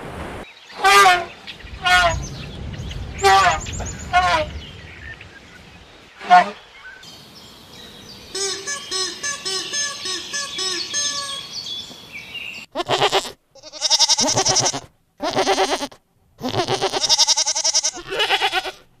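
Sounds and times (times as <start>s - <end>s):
goat bleating: 12.7s - 18.9s.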